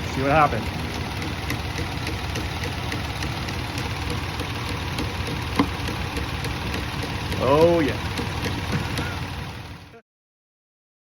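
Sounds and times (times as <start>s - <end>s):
car engine idling: 0.0s - 10.0s
sharp tap under hood: 1.2s - 7.1s.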